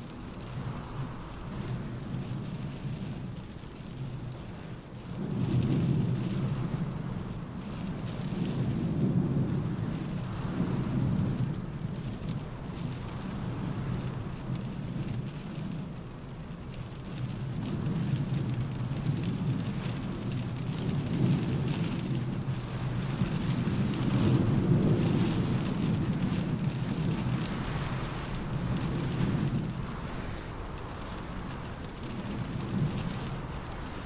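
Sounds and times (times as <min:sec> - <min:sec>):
rain on a car roof: 0:00.0 - 0:34.0
wind howling: 0:22.4 - 0:34.0.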